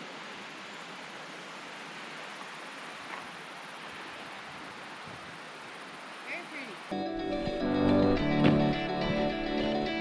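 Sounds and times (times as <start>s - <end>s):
distant river rushing: 0.0s - 6.9s.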